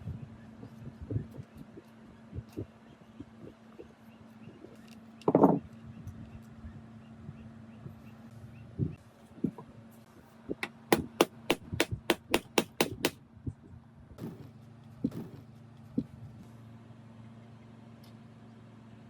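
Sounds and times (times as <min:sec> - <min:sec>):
hammer blows: 0:10.6 - 0:13.2.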